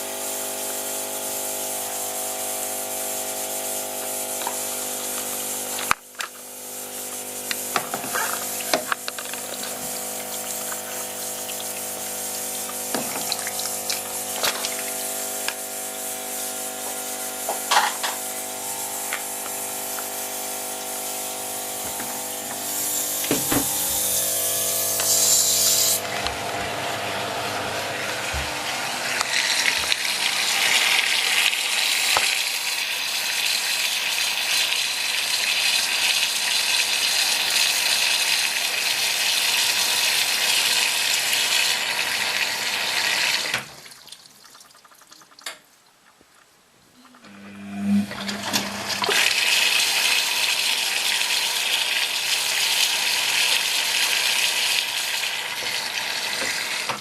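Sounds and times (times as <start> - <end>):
water rushing into washing machine: 0.0 - 45.6, 47.1 - 57.0
hum: 46.9 - 49.1.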